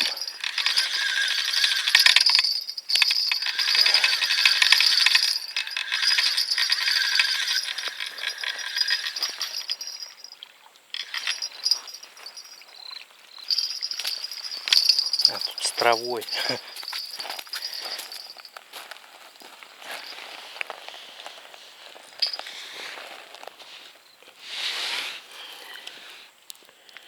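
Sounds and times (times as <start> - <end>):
fishing reel whirring: 0.0 - 10.4, 11.0 - 12.6, 13.5 - 18.3.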